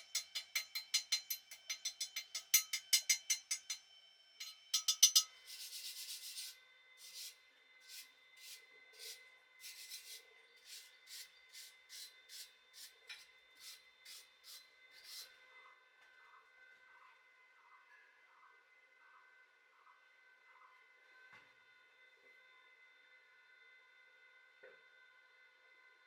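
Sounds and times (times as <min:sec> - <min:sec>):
wire brush scrubbing steel: 0:04.8 - 0:12.9, 0:13.6 - 0:15.3.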